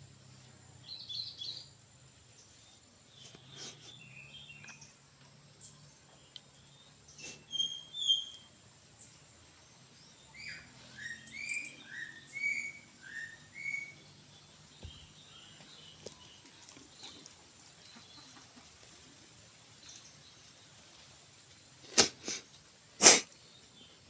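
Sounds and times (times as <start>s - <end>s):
bird chirping: 0.8s - 18.4s.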